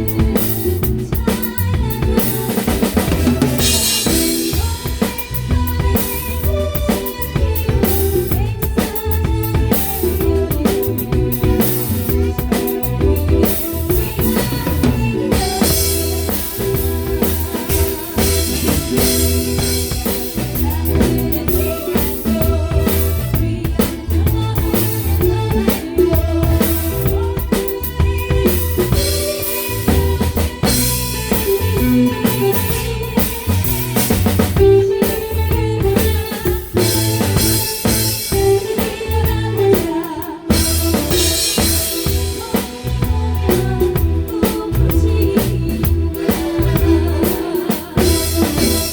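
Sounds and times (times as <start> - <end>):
drum kit beat: 0.0 - 48.9
live band playing: 0.0 - 48.9.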